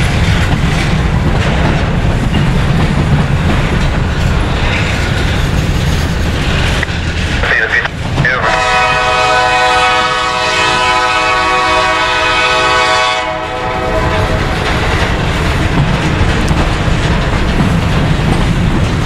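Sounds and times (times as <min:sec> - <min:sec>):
passing train rumble: 0:00.0 - 0:19.0
locomotive air horn: 0:08.4 - 0:14.6.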